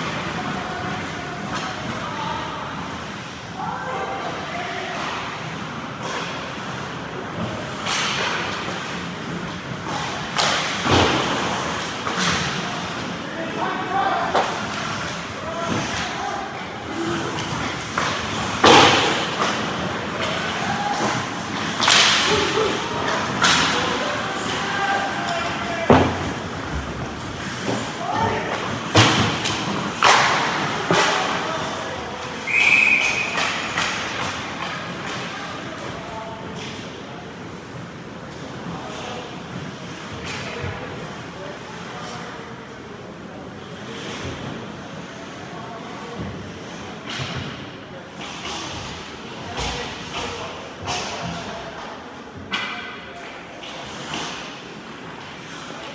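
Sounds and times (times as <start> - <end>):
rink crowd hubbub: 0.0 - 55.9
puck and stick knocks: 9.9 - 13.1, 16.8 - 36.0
referee's whistle blast: 32.4 - 33.4.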